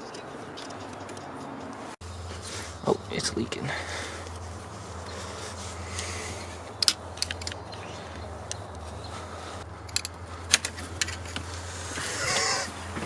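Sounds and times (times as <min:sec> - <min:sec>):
tools clicking and tapping: 0:00.0 - 0:01.9, 0:06.7 - 0:08.9, 0:09.8 - 0:11.4.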